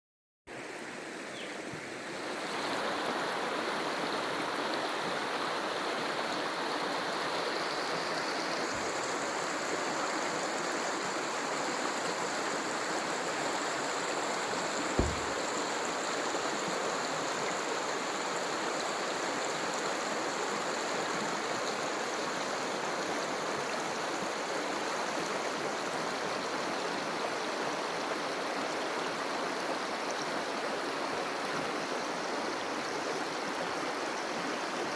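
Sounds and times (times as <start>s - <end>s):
running water rushing: 0.5s - 34.9s
low thump: 14.9s - 15.6s.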